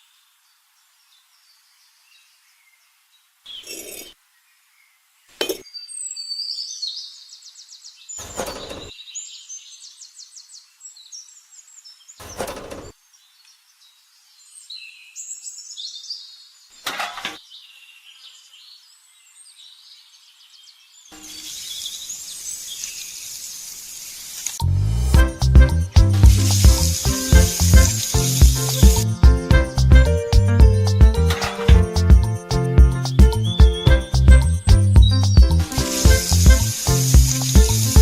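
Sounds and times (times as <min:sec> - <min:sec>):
birds singing in trills: 0:17.4 - 0:23.6.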